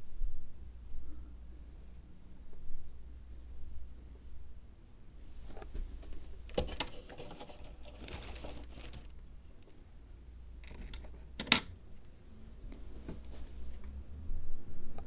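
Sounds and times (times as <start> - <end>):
soft scraping rustle: 5.2 - 9.2, 12.4 - 14.0.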